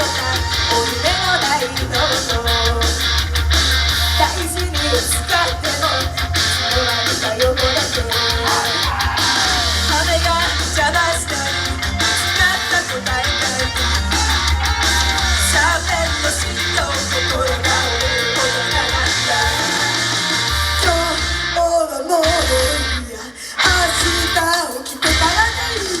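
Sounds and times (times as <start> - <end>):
people shouting: 0.0 - 2.2, 8.1 - 10.6, 12.3 - 20.8
live rock music: 0.0 - 26.0.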